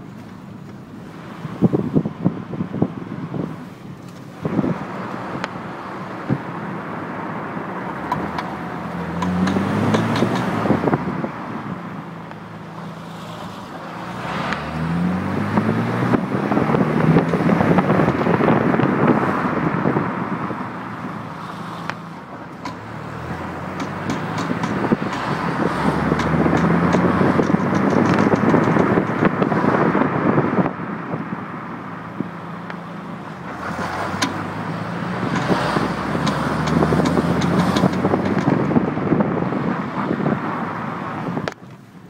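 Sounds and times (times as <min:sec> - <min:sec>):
car engine accelerating hard: 0:04.3 - 0:41.6
sharp knocks and clunks: 0:09.2 - 0:10.6, 0:23.7 - 0:29.3.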